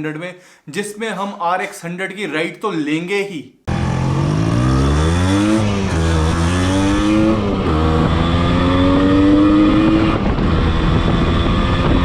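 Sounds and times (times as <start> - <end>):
motorcycle engine accelerating: 3.7 - 12.0.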